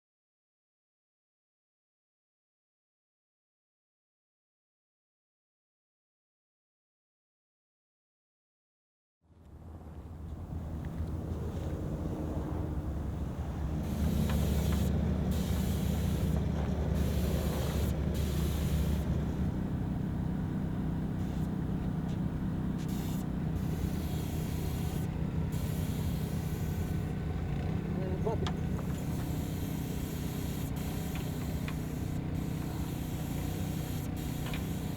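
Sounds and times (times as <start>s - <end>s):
engine droning: 9.4s - 34.9s.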